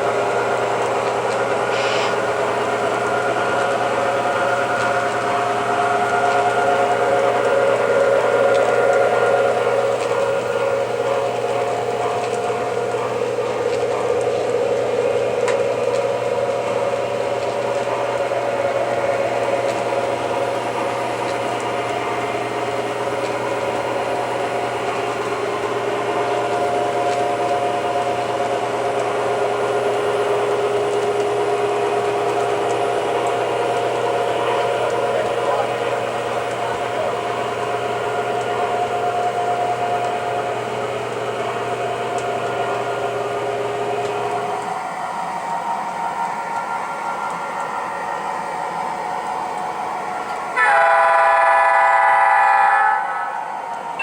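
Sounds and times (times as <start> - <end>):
model locomotive diesel engine hum: 0.0 - 54.0
rumble of train wheels: 0.0 - 54.0.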